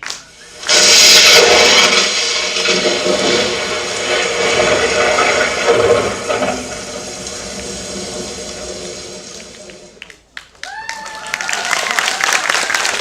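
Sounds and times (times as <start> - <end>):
audience applause: 0.0 - 1.2, 9.2 - 13.0.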